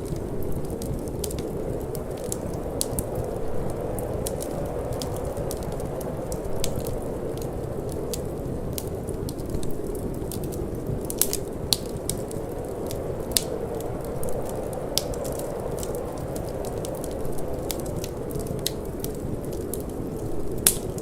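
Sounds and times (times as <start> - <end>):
low rush of wind: 0.0 - 21.0
wood fire crackling and popping: 0.0 - 21.0.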